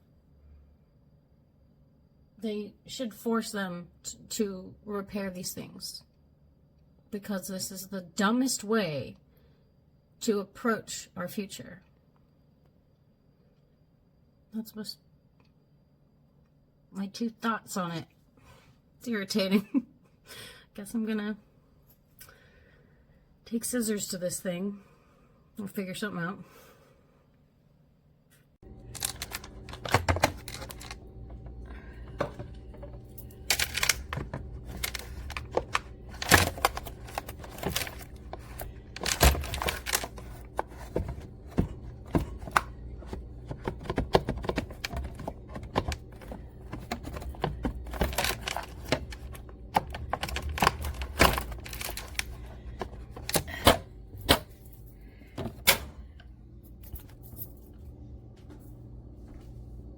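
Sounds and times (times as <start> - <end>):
low hum: 28.6 - 59.9
hard objects clicking and knocking: 28.9 - 54.5.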